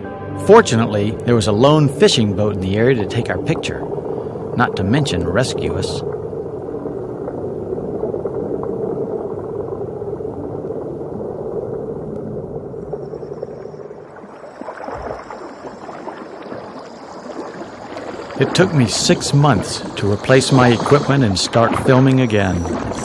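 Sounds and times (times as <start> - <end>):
boat engine droning: 0.0 - 8.0, 13.7 - 23.0
water sloshing and gurgling: 0.4 - 23.0.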